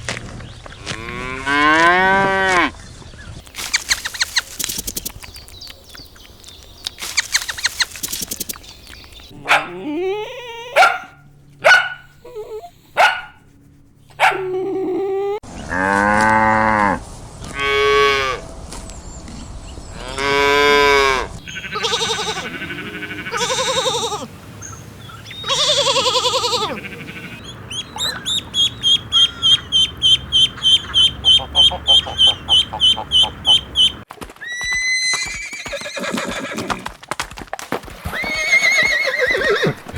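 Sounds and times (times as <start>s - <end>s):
cattle mooing: 0.8s - 2.7s
farm animal calls: 3.5s - 6.0s, 6.9s - 13.4s, 14.0s - 14.6s, 20.0s - 36.8s
short high-pitched animal calls: 21.4s - 24.3s.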